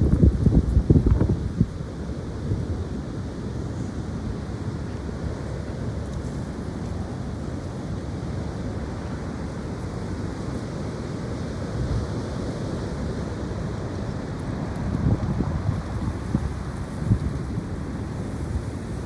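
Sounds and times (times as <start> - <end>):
wind buffeting microphone: 0.0 - 6.3, 13.2 - 19.0
strong wind blowing: 0.0 - 7.5, 12.5 - 19.0.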